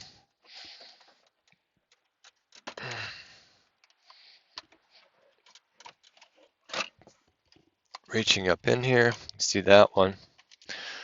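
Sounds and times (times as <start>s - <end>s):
man breathing out heavily: 0.0s - 1.3s, 2.7s - 5.2s, 10.6s - 11.0s.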